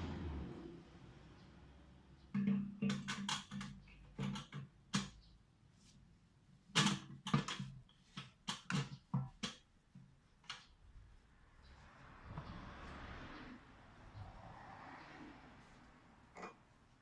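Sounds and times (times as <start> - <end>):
tools clicking and knocking on engine: 2.3 - 5.4, 6.7 - 10.8.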